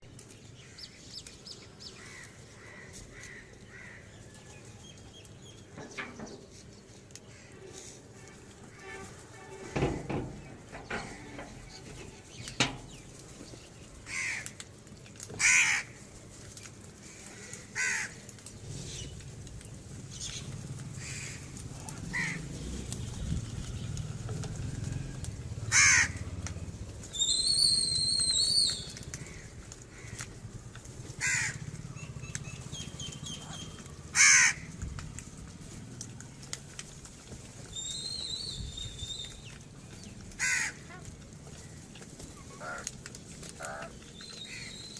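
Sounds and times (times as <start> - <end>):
crows cawing: 2.0 - 4.3, 7.2 - 9.0, 14.0 - 14.7, 15.3 - 16.2, 17.0 - 18.3, 20.9 - 22.5, 25.5 - 26.5, 29.1 - 31.8, 33.5 - 34.8, 40.3 - 44.8
bird rapidly repeated call: 27.2 - 29.4.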